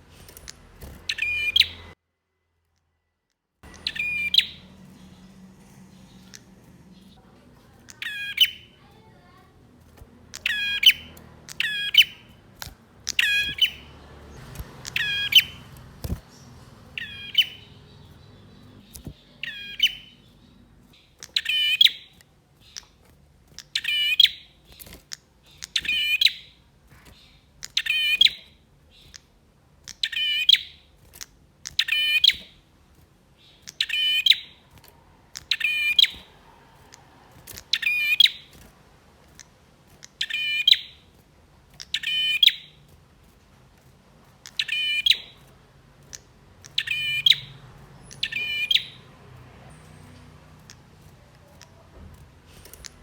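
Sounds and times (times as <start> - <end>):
bird chattering call: 3.6 - 7.2, 7.8 - 9.5, 10.3 - 12.4, 13.0 - 15.8, 16.4 - 20.4, 46.1 - 49.1.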